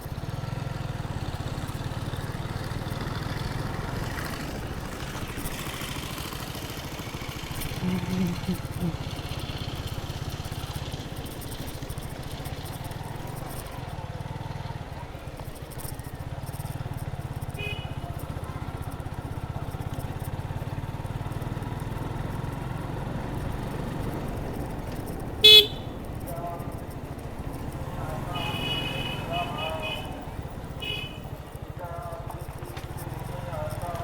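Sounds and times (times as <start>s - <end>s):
motorcycle engine running: 0.0s - 34.0s
horn beep: 25.4s - 26.0s.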